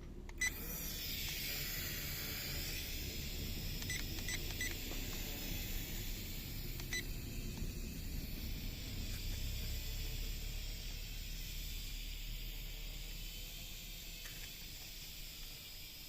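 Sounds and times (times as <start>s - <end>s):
toy drone propellers whirring: 0.3s - 16.0s.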